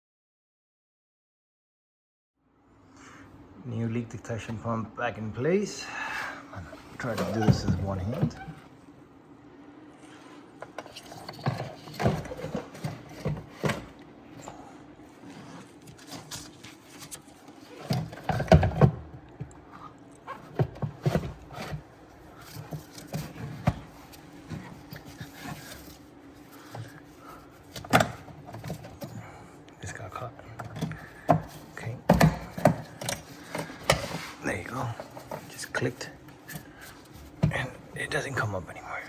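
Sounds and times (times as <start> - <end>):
plastic parts knocking and rubbing: 10.6 - 14.6, 15.2 - 29.2, 30.2 - 34.4.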